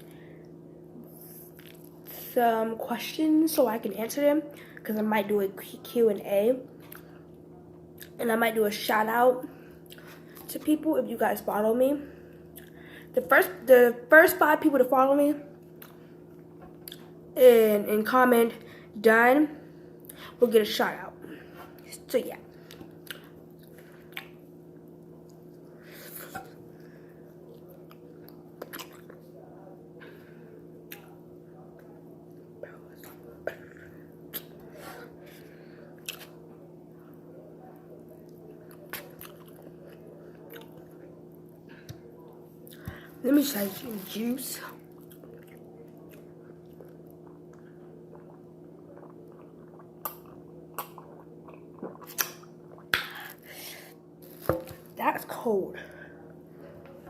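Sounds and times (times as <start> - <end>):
person chewing food: 1.2 - 2.0, 22.5 - 26.6, 27.3 - 29.3, 32.9 - 36.4, 38.6 - 41.0, 44.8 - 53.5
person sipping and swallowing: 46.6 - 53.5
noisy mouth smack: 50.0 - 53.3.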